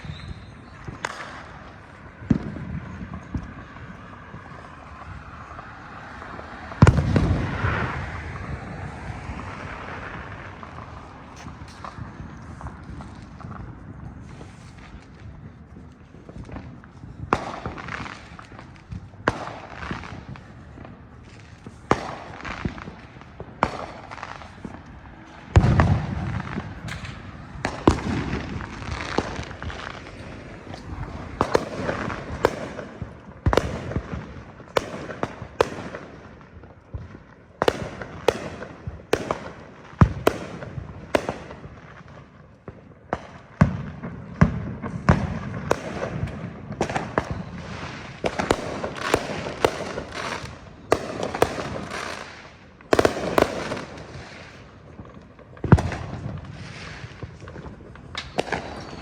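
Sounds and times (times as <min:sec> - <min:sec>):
firecrackers crackling: 0:00.0 - 0:59.0
fireworks bangs and pops: 0:00.0 - 0:59.0
deep firework boom: 0:06.2 - 0:14.4, 0:25.5 - 0:34.3.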